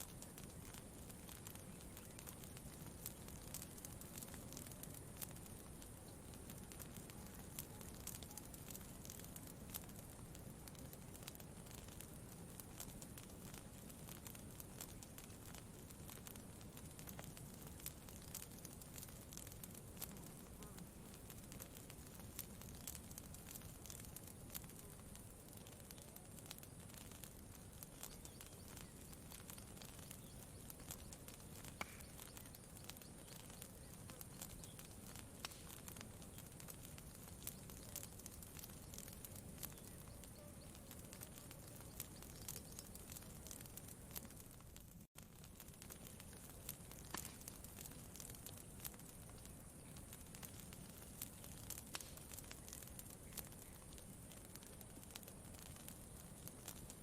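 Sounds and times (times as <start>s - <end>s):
burning wood popping: 0.0s - 57.0s
campfire crackling: 0.0s - 57.0s.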